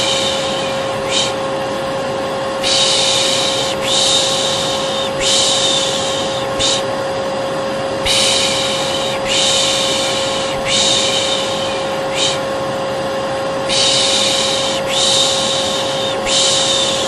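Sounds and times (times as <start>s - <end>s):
person shushing: 0.0s - 1.4s, 2.6s - 6.9s, 8.0s - 12.6s, 13.7s - 17.0s
vacuum cleaner humming: 0.0s - 17.0s.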